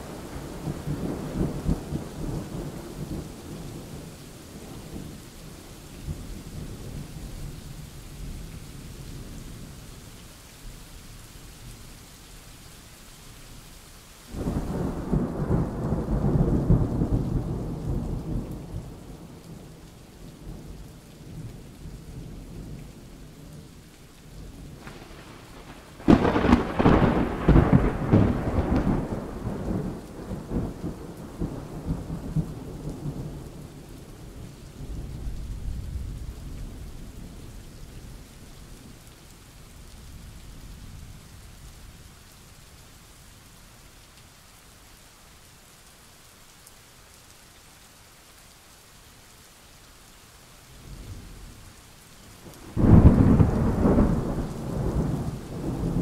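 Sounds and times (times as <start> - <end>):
steady rain: 0.0 - 56.0
rolling thunder: 24.6 - 33.6, 52.5 - 56.0
sharp thunder clap: 24.8 - 30.6.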